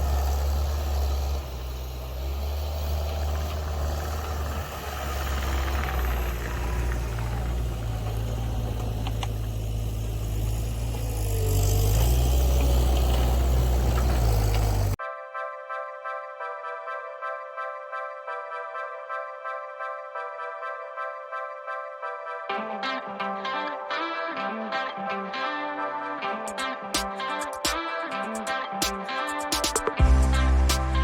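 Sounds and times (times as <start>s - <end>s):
diesel engine running: 0.0s - 15.0s, 30.0s - 31.0s.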